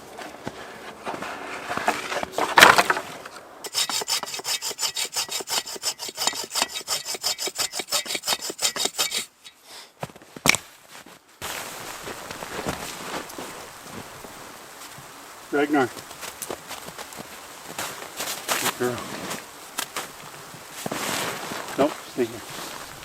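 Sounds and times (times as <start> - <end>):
loud scrape: 0.6 - 9.9
rapid rasping strokes: 3.6 - 9.6.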